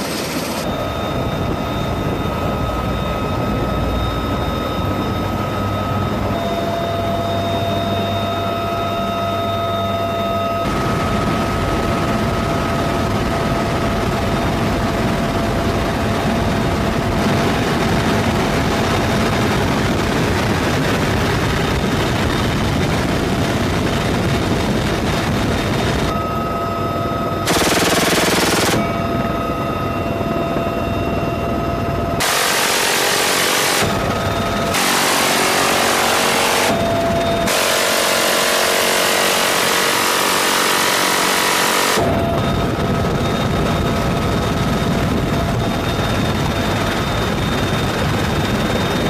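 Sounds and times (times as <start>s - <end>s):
helicopter running noise: 0.0s - 49.0s
minigun firing: 27.5s - 29.0s, 32.2s - 42.3s.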